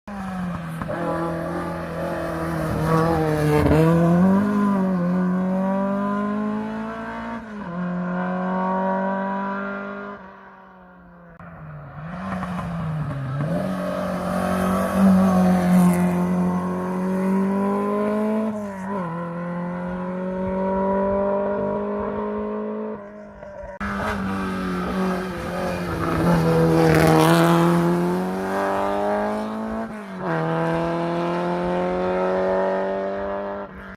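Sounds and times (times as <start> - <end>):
race car engines revving hard: 23.8 - 33.9.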